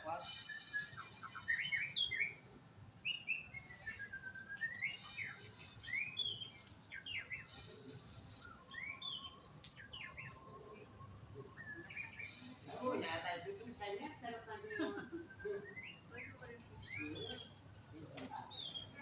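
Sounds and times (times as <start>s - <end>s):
bird singing whistled phrases: 0.1s - 2.4s, 3.0s - 7.5s, 8.4s - 12.5s, 15.2s - 17.7s.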